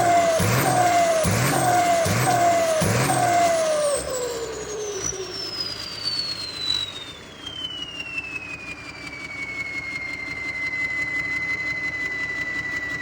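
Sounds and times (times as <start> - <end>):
diesel engine running: 0.0 - 9.3
turbocharger whine spooling down: 0.0 - 13.0.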